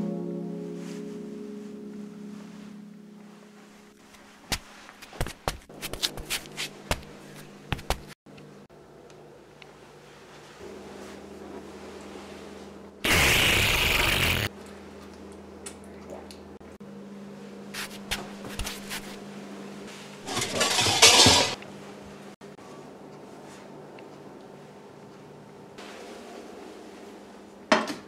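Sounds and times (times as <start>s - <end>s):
bursts of rushing noise: 13.1s - 14.5s
crockery clinking: 20.3s - 21.6s.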